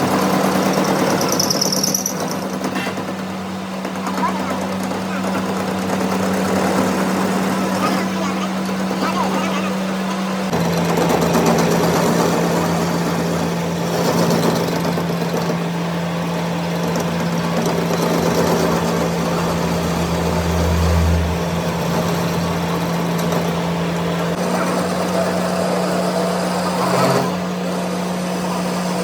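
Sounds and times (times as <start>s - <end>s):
motor running steadily: 0.0s - 29.0s
deeper hum: 17.0s - 24.6s.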